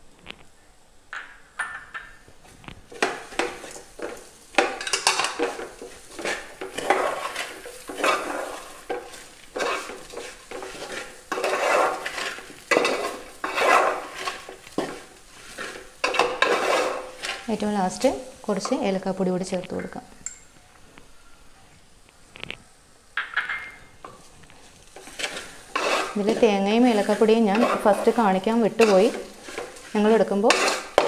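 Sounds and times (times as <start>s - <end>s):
utensil scraping a pan: 2.9s - 18.9s, 24.0s - 31.0s.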